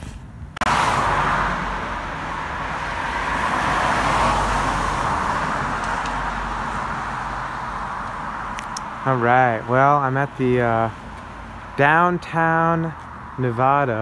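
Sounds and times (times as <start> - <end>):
passing car traffic: 0.0 - 14.0.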